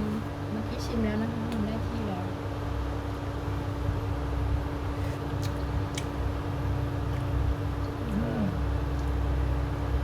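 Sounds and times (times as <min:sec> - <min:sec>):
constant hum: 0:00.0 - 0:10.0.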